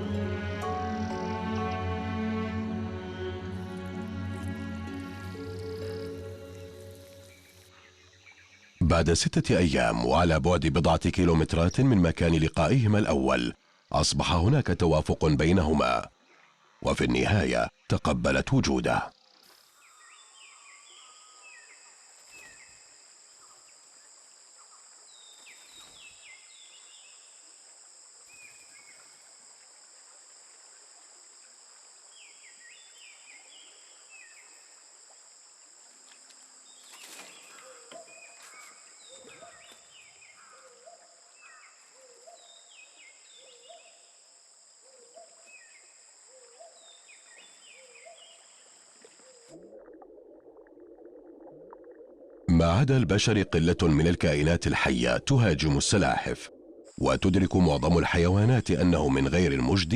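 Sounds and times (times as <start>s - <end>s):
lower chirping calls: 0.0s - 8.6s, 37.4s - 44.0s
high insect drone: 0.1s - 8.8s.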